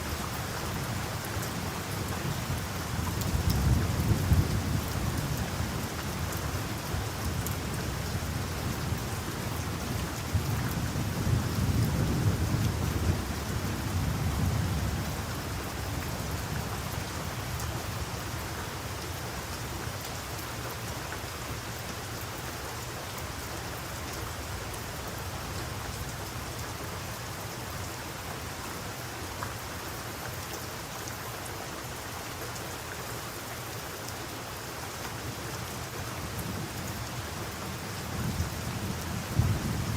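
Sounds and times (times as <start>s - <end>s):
heavy rain falling: 0.0s - 39.9s
low thunder rumbling: 38.2s - 39.9s.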